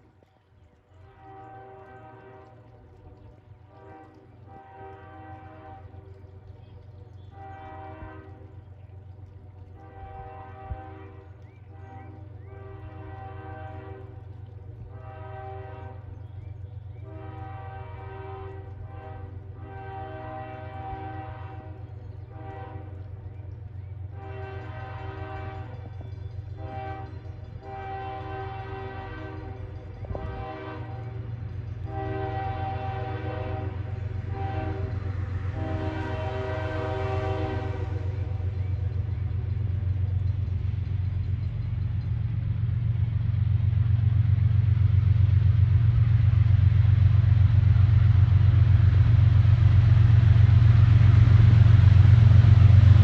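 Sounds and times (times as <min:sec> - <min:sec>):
locomotive engine rumble: 0:00.0 - 0:53.0
locomotive horn blasts: 0:01.0 - 0:02.7, 0:03.7 - 0:06.2, 0:07.3 - 0:08.6, 0:09.8 - 0:16.1, 0:17.0 - 0:23.2, 0:24.1 - 0:38.6.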